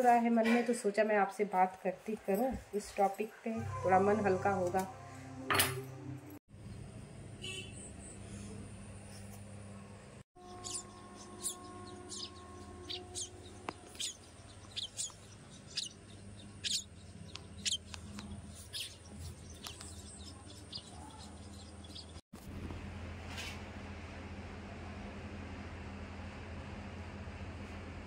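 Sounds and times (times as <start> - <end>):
low steady hum: 8.0 - 28.0
birds chirping: 10.4 - 22.2.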